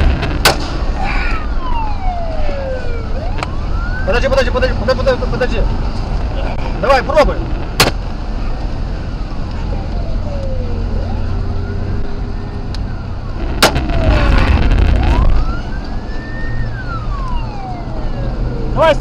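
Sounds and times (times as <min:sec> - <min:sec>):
gunshot: 0:00.0 - 0:01.0, 0:07.8 - 0:08.0, 0:13.4 - 0:14.7
loud rush of noise: 0:00.0 - 0:09.2, 0:13.1 - 0:16.6
car rumble: 0:00.0 - 0:19.0
police siren wailing: 0:00.9 - 0:06.0, 0:08.3 - 0:19.0.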